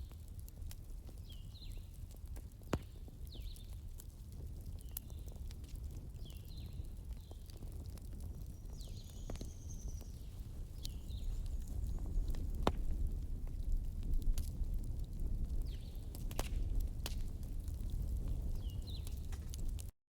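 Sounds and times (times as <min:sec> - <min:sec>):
fire burning with crackles: 0:00.0 - 0:19.9.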